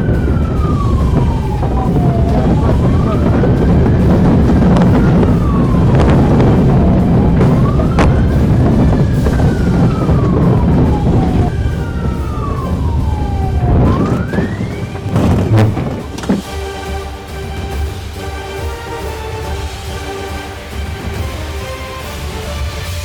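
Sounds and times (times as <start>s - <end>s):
siren wailing: 0.0s - 17.4s
low rumble: 0.0s - 18.4s.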